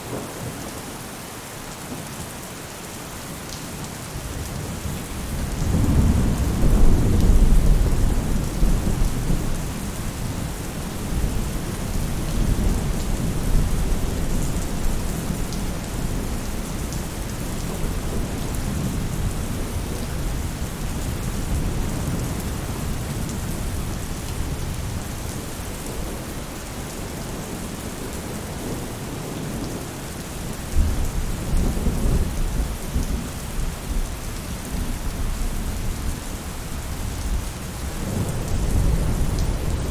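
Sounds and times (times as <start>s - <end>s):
rain falling on a roof: 0.0s - 39.9s
low rolling thunder: 5.2s - 25.1s, 37.1s - 39.9s.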